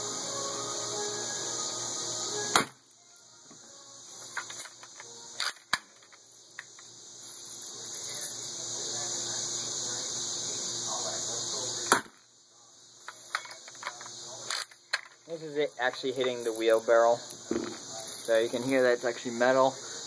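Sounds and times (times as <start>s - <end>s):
steady high hiss: 0.0s - 20.0s
bb gun firing: 2.5s - 2.8s, 11.9s - 12.2s.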